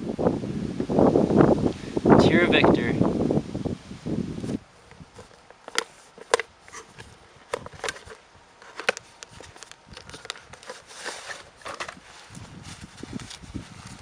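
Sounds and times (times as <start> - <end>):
packaging clicks and rustles: 4.9 - 14.0.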